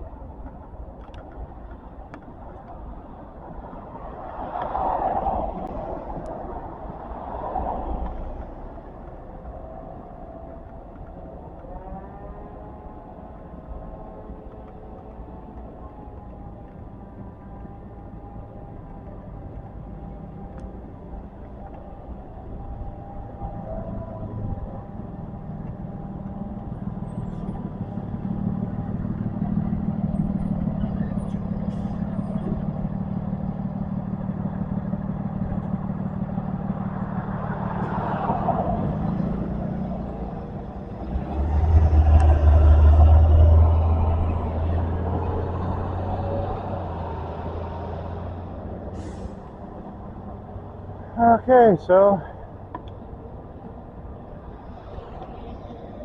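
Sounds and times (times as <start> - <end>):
vehicle engines humming: 0.0 - 56.0
heavy vehicle rumbling past: 16.1 - 56.0.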